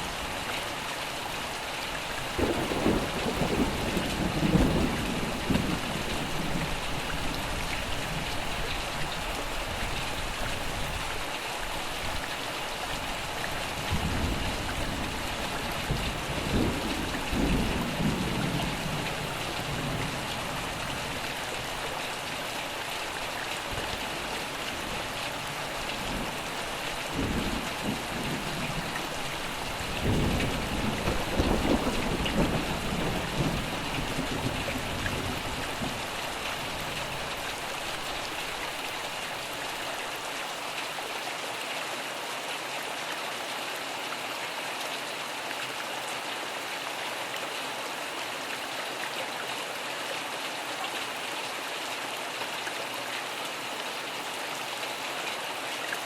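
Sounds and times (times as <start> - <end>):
steady rain: 0.0 - 56.0
thunder rumbling: 2.4 - 7.1, 27.1 - 36.1.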